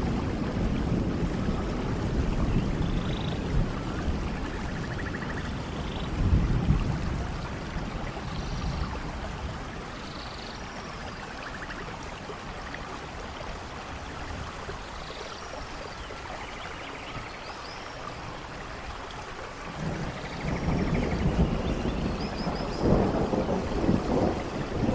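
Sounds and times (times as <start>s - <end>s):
thunder rumbling: 0.0s - 9.8s, 19.7s - 24.9s
heavy rain: 0.0s - 24.9s.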